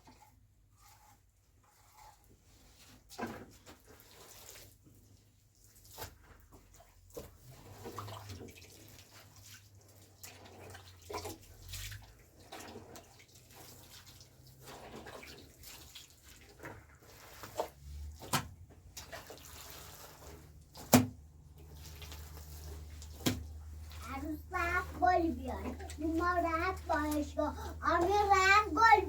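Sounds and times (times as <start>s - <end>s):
mud splashing and squelching: 3.7s - 29.0s.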